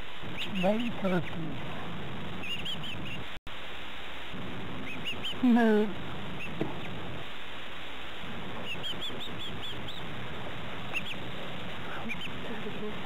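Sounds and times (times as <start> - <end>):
tape hiss: 0.0 - 13.0
young bird peeping: 0.2 - 3.4, 4.7 - 7.2, 8.3 - 13.0.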